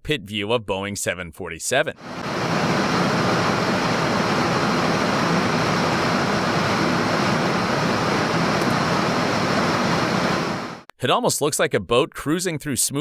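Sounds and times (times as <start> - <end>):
cockpit air and engine noise: 2.0 - 10.9.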